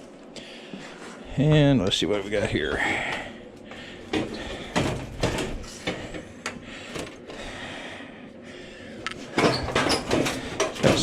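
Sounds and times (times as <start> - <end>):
metal clanks and clicks: 9.4 - 11.0
metal parts knocking and scraping: 9.4 - 11.0.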